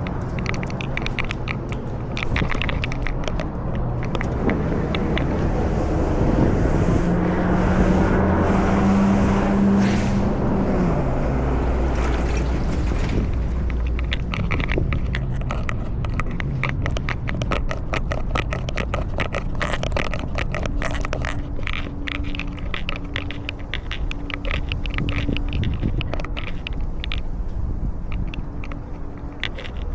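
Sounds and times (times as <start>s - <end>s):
crackling and scraping: 0.0s - 6.5s, 11.6s - 29.9s
motor vehicle humming: 0.0s - 29.9s.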